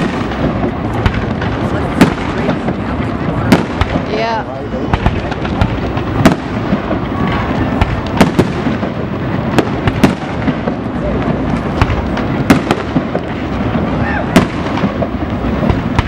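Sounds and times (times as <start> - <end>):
continuous din: 0.0 - 16.0
fireworks bangs: 0.0 - 16.0.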